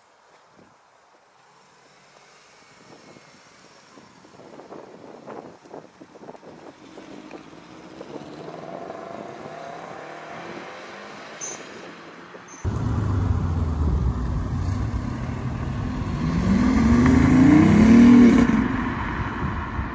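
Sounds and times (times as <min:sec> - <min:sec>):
car engine pulling away: 0:06.4 - 0:12.0, 0:12.6 - 0:19.7
car accelerating past: 0:06.8 - 0:12.0, 0:12.6 - 0:19.9.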